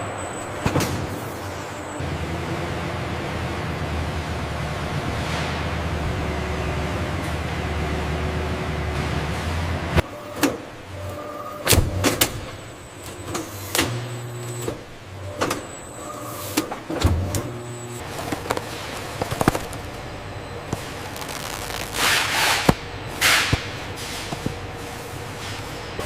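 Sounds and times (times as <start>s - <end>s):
mechanical clicks and clunks: 10.0s - 22.8s
electric motor whirs: 17.1s - 20.1s, 20.7s - 22.1s.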